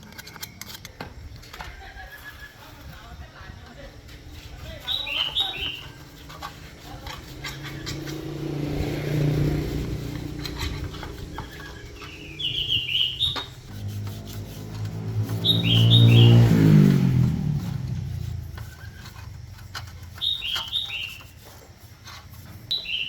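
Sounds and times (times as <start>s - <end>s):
small engine running: 3.7s - 22.6s
bird chirping falling notes: 4.8s - 6.3s, 7.4s - 13.7s, 14.7s - 17.3s, 20.1s - 21.4s, 22.7s - 23.0s.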